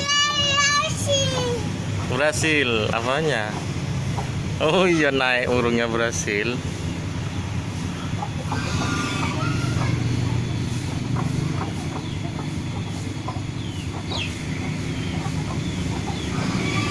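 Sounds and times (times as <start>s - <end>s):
bird clucking calls: 0.0s - 16.9s
bird chirps: 6.6s - 16.9s.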